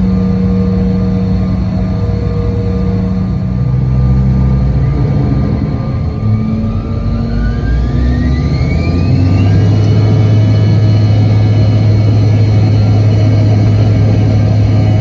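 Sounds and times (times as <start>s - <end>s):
jet engine whine rising: 0.0s - 15.0s
jet engines droning in cabin: 0.0s - 15.0s.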